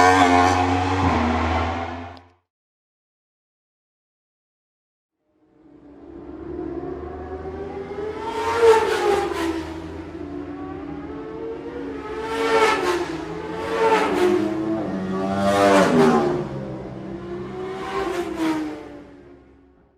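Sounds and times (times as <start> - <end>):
motorcycle engine revving: 0.0 - 2.2.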